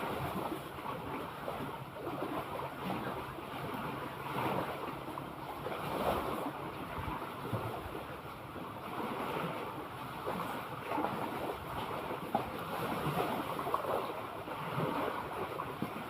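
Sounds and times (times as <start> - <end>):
sea waves washing: 0.0 - 16.0
wind noise on microphone: 5.7 - 8.1.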